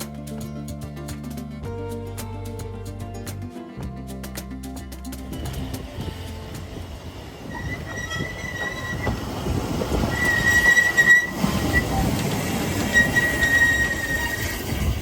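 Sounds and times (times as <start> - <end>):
rumble of train wheels: 4.2 - 15.0
train wheel squeal: 5.3 - 15.0.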